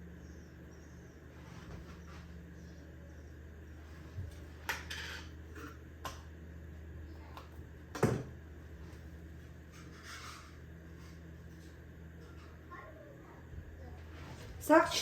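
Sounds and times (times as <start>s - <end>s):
steady low hum: 0.0s - 15.0s
dishes and utensils clattering: 4.6s - 6.2s.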